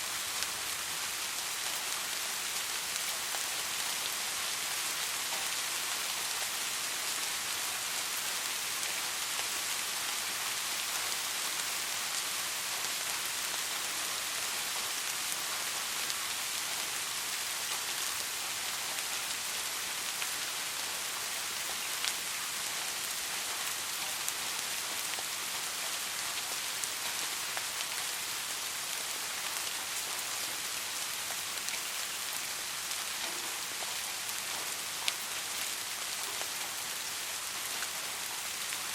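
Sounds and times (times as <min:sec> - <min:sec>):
soft rain falling: 0:00.0 - 0:38.9.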